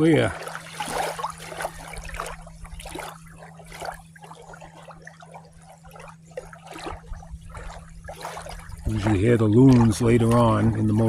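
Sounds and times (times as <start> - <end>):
waves lapping at shore: 0.0 - 11.0.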